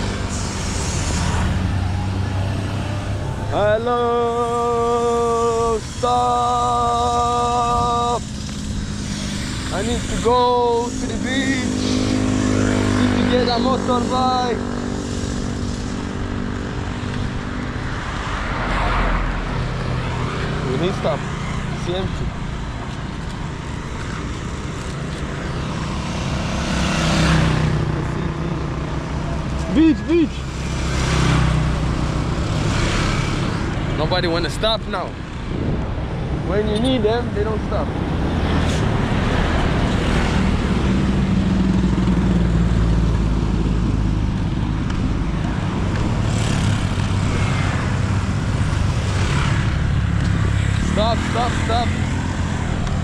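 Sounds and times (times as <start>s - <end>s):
road traffic engine drone: 0.0s - 53.0s
vehicle driving past: 24.1s - 34.6s.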